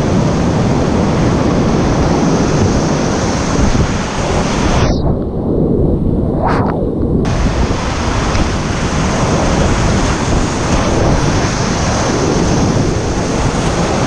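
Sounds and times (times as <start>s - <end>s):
whitewater roaring: 7.2s - 14.0s.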